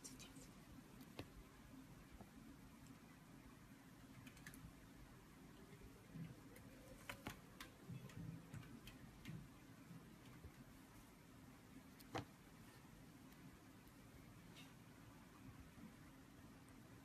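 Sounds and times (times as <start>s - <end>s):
faint clicks and taps: 0.1s - 1.5s, 2.1s - 3.1s, 6.0s - 11.1s, 11.8s - 14.9s.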